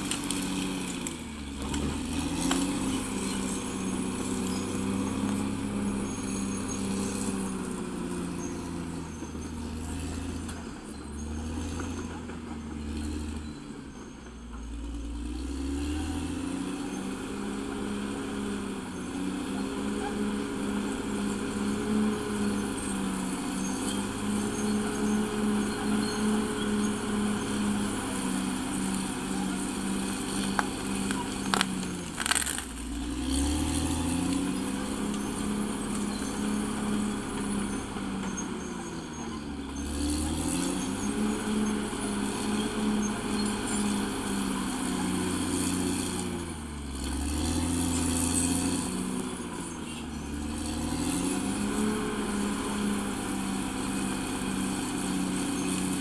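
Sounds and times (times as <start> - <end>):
bulldozer diesel engine running hard: 0.0 - 56.0.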